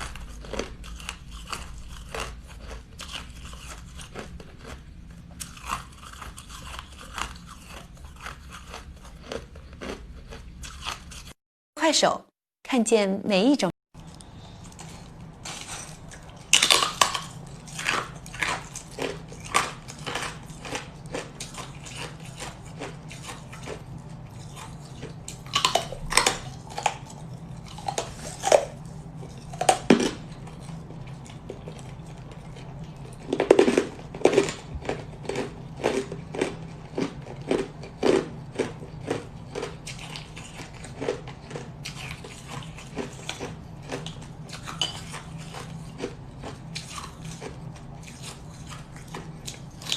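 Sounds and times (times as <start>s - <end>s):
crunching hard ice: 15.4s - 23.8s, 33.2s - 44.0s.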